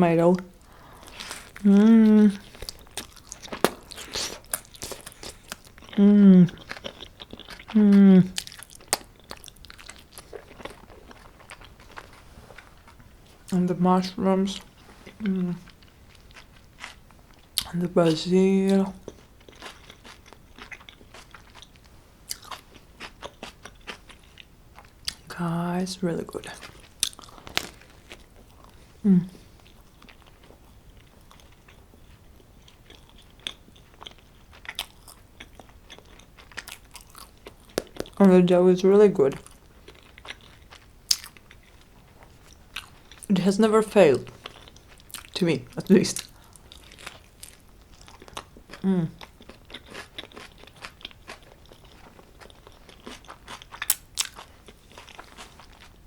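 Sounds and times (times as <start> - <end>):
person chewing food: 0.3 - 25.3, 26.2 - 38.2, 39.3 - 56.0
person humming mm: 1.6 - 2.5, 6.0 - 6.6, 7.7 - 8.4, 15.2 - 15.7, 29.0 - 29.5, 48.8 - 49.2.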